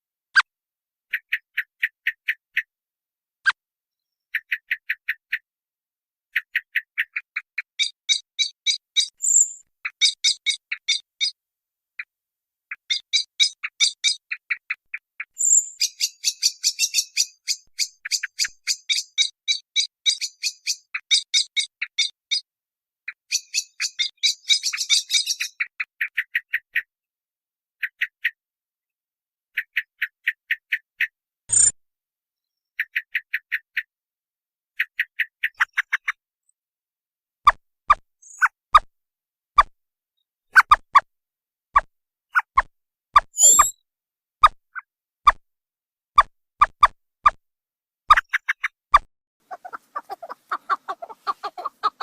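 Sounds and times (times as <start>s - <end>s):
rapid high-pitched chirps: 15.3s - 22.4s, 23.2s - 25.6s.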